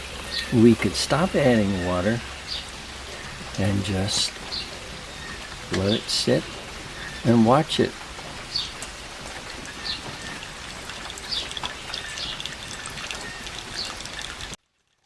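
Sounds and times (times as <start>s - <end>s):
water bubbling and spattering: 0.0s - 14.6s.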